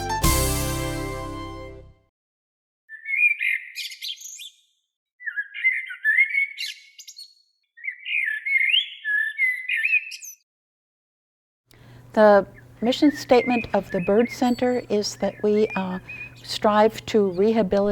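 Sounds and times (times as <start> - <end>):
songbird warbling: 2.9 - 4.6, 5.2 - 10.4, 12.2 - 17.9.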